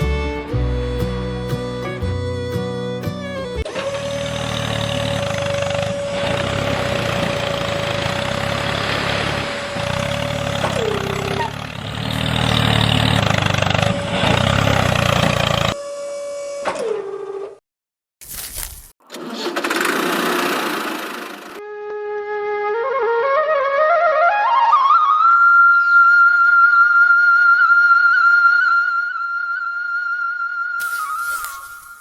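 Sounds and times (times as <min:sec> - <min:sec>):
small motor whining: 0:03.6 - 0:12.2, 0:30.8 - 0:32.0.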